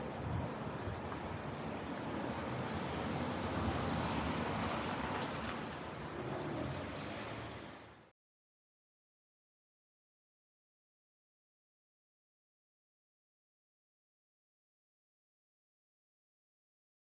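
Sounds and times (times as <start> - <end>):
traffic and street noise: 0.0 - 8.1.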